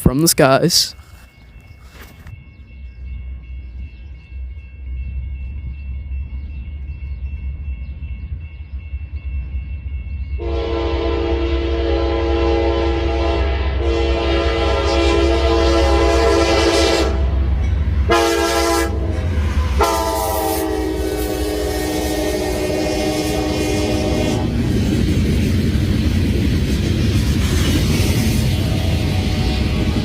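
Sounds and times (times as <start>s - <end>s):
locomotive air horn blasts: 10.4s - 17.4s, 18.0s - 24.6s.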